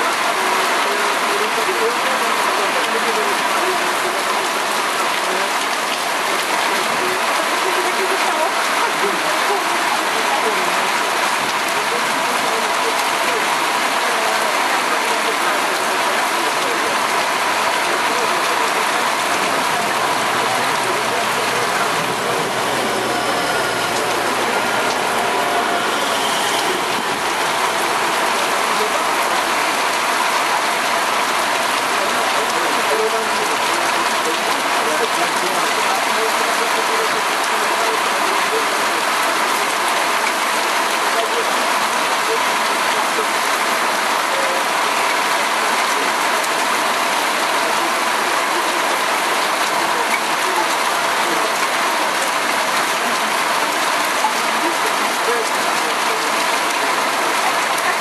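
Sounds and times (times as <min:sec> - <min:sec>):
heavy rain hissing: 0:00.0 - 0:58.0
passenger train passing: 0:19.6 - 0:28.5.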